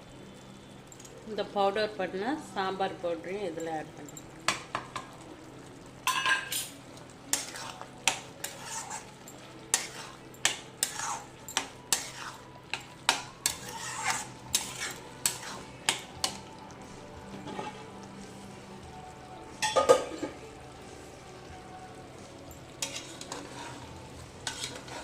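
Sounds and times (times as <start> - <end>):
spoon clinking and scraping pot: 6.0 - 16.5, 17.3 - 18.1, 19.6 - 20.4, 22.7 - 25.0.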